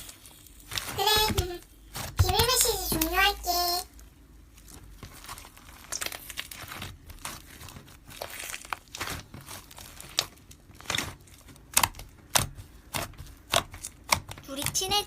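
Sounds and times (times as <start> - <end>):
slime squished by hand: 4.0 - 15.0.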